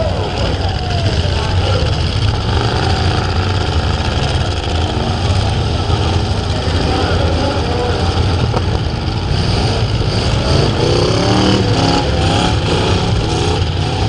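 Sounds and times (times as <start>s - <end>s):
truck engines racing and revving: 0.0s - 14.0s.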